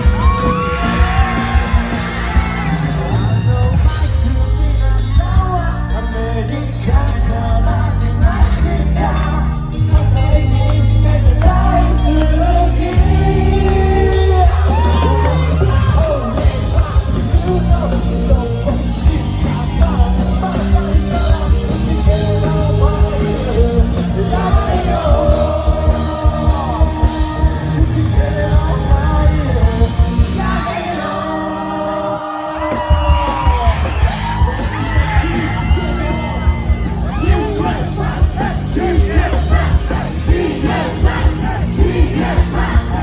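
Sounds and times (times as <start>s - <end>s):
drum beats: 0.0s - 31.2s, 32.5s - 43.0s
bass: 0.0s - 43.0s
person singing and shouting: 11.2s - 43.0s.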